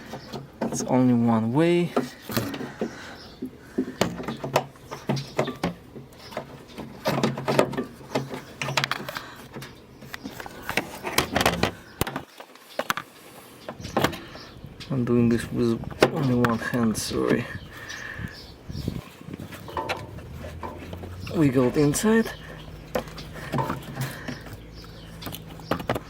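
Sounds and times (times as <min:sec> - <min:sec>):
plastic scraping: 0:01.9 - 0:13.1, 0:15.9 - 0:26.0
plastic clicks and knocks: 0:25.2 - 0:26.0.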